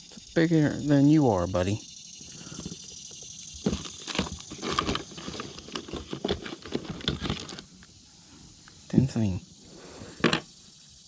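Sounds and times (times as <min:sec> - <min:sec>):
steady hiss: 0:00.0 - 0:11.0
rustles: 0:02.2 - 0:08.9.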